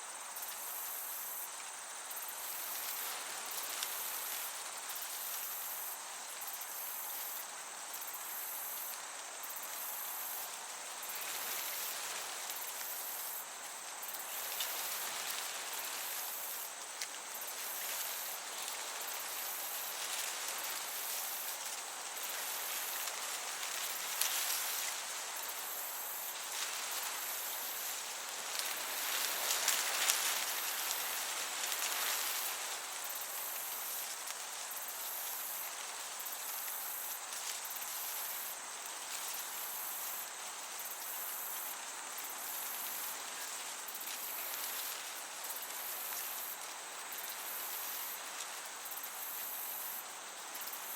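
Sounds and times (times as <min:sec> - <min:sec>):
crickets chirping: 0:00.0 - 0:50.9
soft breeze: 0:00.0 - 0:50.9.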